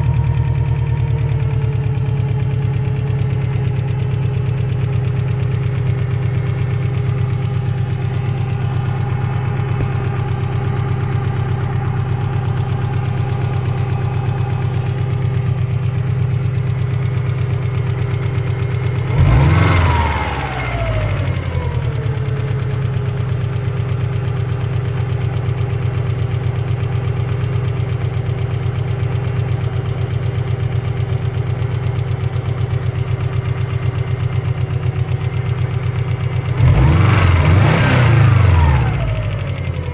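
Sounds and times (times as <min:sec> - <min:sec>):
car engine idling with knock: 0:00.0 - 0:39.9
car engine revving: 0:19.0 - 0:22.0, 0:36.5 - 0:39.9.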